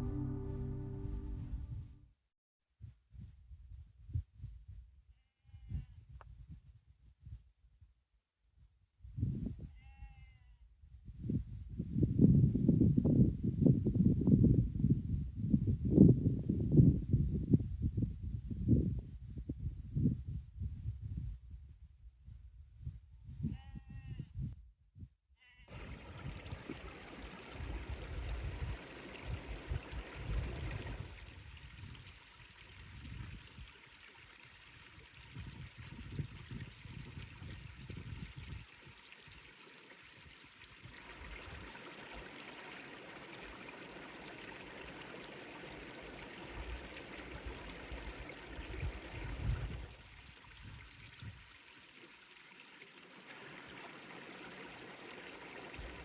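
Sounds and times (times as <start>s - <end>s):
low rumbling: 0.0s - 2.0s
sheep bleating: 9.7s - 10.5s
running water hiss: 25.7s - 35.4s, 37.9s - 56.0s.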